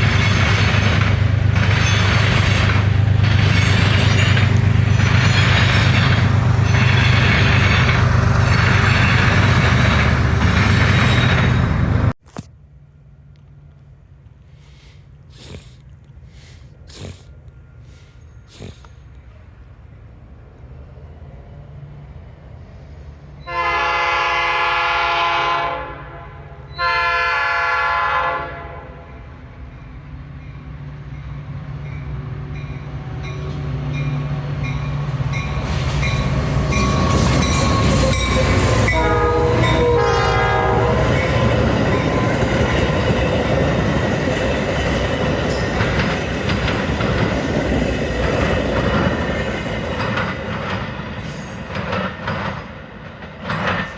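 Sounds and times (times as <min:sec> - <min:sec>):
train wheels rumbling and clacking: 0:00.0 - 0:12.4, 0:30.1 - 0:53.9
train horn blasts: 0:23.4 - 0:29.3, 0:36.1 - 0:43.0.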